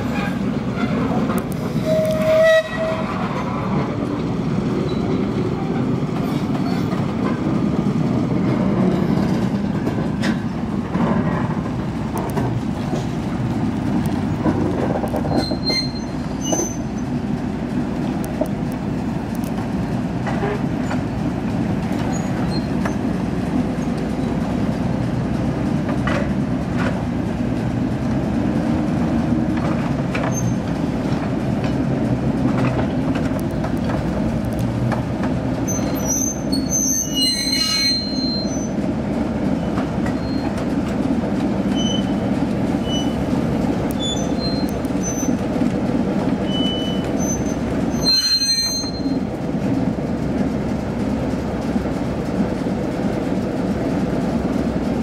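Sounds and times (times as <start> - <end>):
locomotive rumbling on rails: 0.0 - 55.0
wheel squeal: 1.8 - 3.4, 15.2 - 17.1, 22.1 - 23.0, 30.2 - 30.7, 35.6 - 38.8, 39.7 - 40.6, 41.7 - 42.2, 42.8 - 43.2, 43.9 - 45.4, 46.4 - 49.2.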